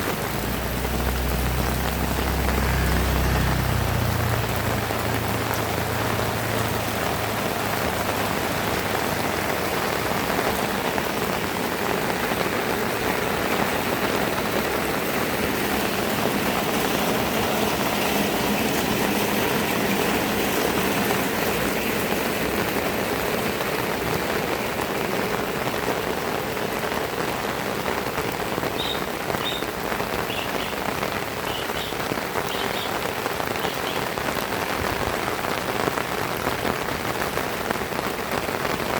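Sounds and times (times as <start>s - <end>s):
heavy rain: 0.0s - 38.9s
short high chirps: 28.8s - 29.7s.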